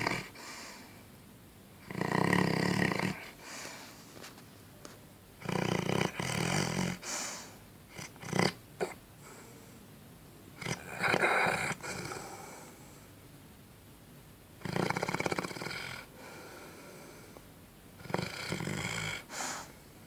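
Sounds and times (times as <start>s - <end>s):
dog snoring: 0.0s - 0.8s, 1.8s - 3.9s, 5.4s - 9.5s, 10.6s - 12.7s, 14.6s - 17.2s, 18.0s - 19.8s.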